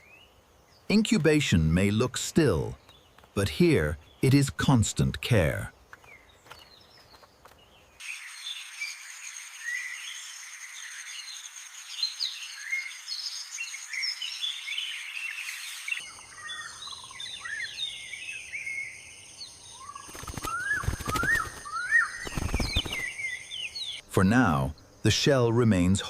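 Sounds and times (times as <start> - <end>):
small birds chirping: 0.0 - 26.0
rising whistled bird calls: 8.0 - 19.1, 19.7 - 24.0
high-pitched insect whine: 8.0 - 23.9.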